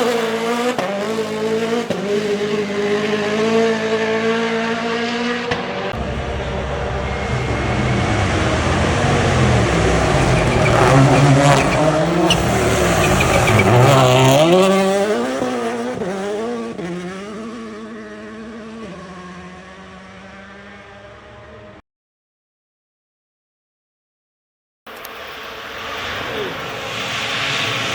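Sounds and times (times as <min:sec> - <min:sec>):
rally car engine revving: 0:00.0 - 0:21.8, 0:25.0 - 0:27.9.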